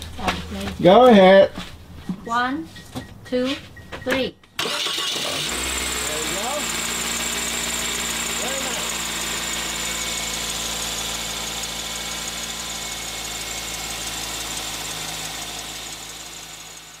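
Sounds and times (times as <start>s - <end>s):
car engine idling: 4.6s - 17.0s.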